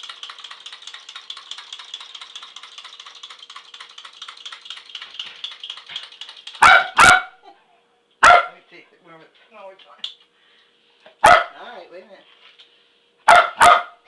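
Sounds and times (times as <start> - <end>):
fast even rattling: 0.0 - 7.0
dog barking loudly: 6.6 - 7.4, 8.2 - 8.6, 11.2 - 11.6, 13.3 - 14.0.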